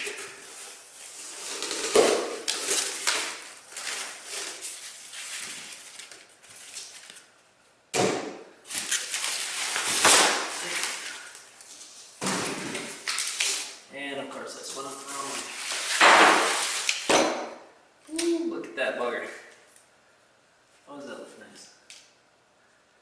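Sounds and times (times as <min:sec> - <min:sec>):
packing material rustling: 0:00.0 - 0:07.3.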